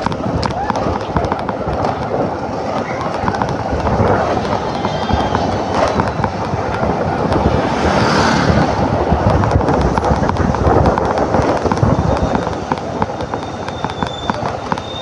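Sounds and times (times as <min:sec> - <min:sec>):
scooter engine and road noise: 0:00.0 - 0:15.0.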